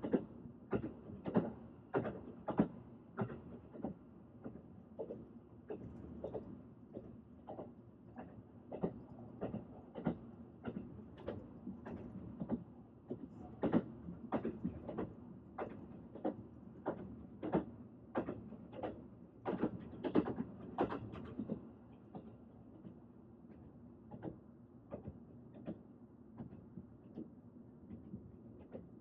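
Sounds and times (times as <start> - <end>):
train wheels clacking on rail joints: 5.8 - 22.3.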